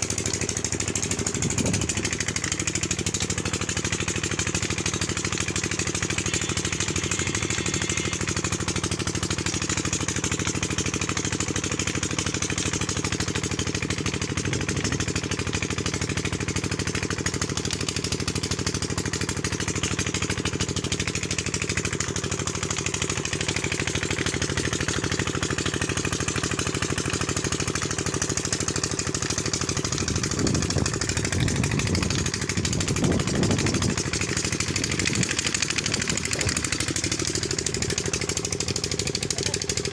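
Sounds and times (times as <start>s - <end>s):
diesel engine driving pump: 0.0s - 39.9s.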